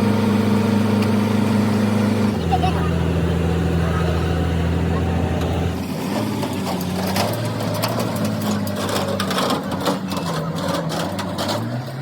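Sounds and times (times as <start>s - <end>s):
engine running: 0.0s - 12.0s
metallic clicks and clatter: 6.2s - 12.0s.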